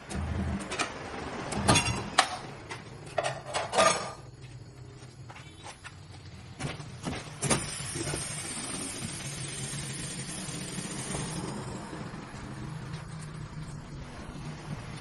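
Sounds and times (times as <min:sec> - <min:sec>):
steady hiss: 0:07.1 - 0:15.0
low motor hum: 0:08.2 - 0:15.0.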